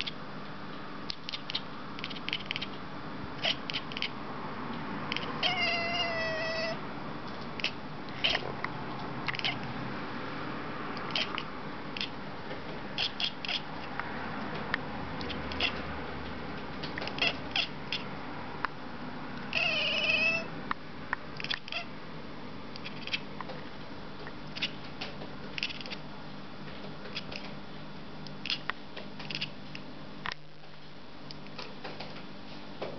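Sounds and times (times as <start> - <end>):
cat chirping: 1.3 - 2.8, 3.4 - 4.2, 5.1 - 6.8, 7.6 - 8.5, 9.2 - 9.6, 11.0 - 12.2, 13.0 - 13.9, 15.2 - 15.8, 17.0 - 18.1, 19.5 - 20.5, 21.4 - 21.9, 22.8 - 23.3, 24.5 - 24.8, 25.6 - 26.0, 28.4 - 28.7
cat meowing: 5.1 - 6.8, 7.6 - 8.5, 9.3 - 9.6, 11.1 - 12.1, 15.5 - 15.8, 17.2 - 18.0, 19.5 - 20.5, 21.4 - 21.9.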